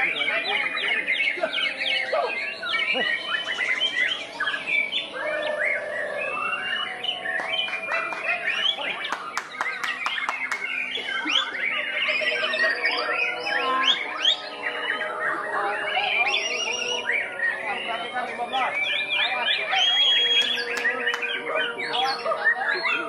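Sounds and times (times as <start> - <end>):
bird singing whistles: 0.0 - 23.0
sharp clicking bird notes: 7.3 - 11.2, 20.1 - 21.4.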